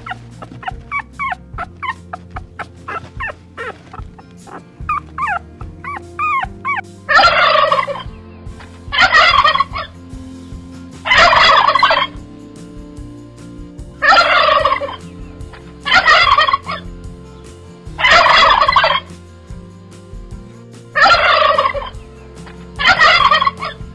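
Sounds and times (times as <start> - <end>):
fowl chirping: 0.0 - 8.1
harsh rattling fowl calls: 0.0 - 10.0, 11.0 - 12.2, 14.0 - 16.8, 17.5 - 19.2, 21.0 - 23.8.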